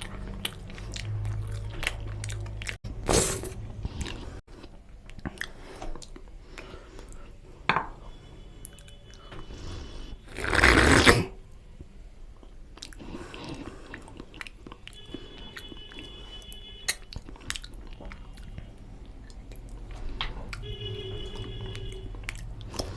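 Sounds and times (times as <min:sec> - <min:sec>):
chewing and biting food: 0:00.0 - 0:02.8, 0:12.7 - 0:16.2, 0:16.9 - 0:22.9.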